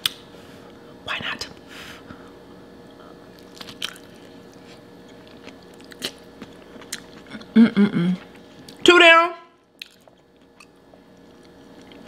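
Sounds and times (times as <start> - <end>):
person chewing soft food: 2.9 - 8.8, 9.7 - 12.0.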